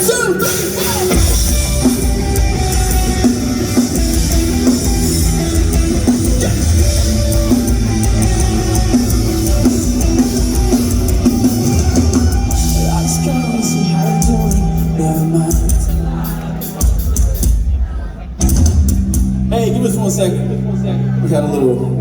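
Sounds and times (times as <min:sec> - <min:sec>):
electric guitar: 0:00.0 - 0:17.5
bass guitar: 0:00.0 - 0:17.7, 0:18.3 - 0:22.0
drum kit: 0:00.0 - 0:20.2.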